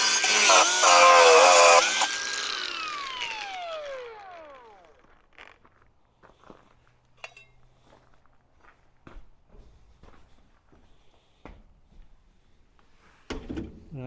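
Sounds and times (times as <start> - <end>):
angle grinder spinning down: 0.0 - 5.6.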